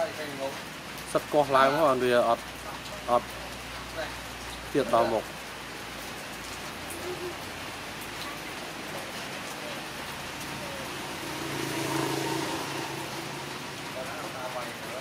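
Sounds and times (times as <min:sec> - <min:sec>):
rain-like hiss: 0:00.0 - 0:15.0.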